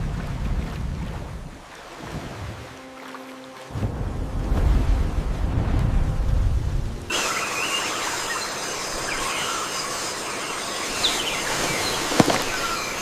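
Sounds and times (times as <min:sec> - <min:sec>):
low rumble of wind and water: 0:00.0 - 0:13.0
steady high hiss: 0:06.9 - 0:13.0
short chirping calls: 0:07.1 - 0:13.0.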